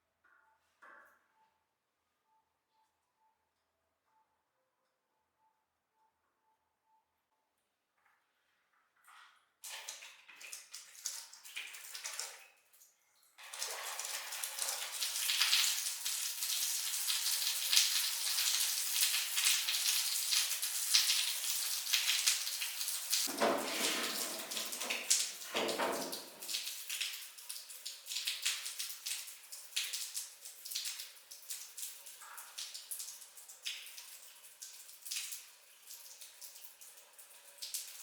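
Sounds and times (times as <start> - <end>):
water running and splashing: 13.4 - 27.4.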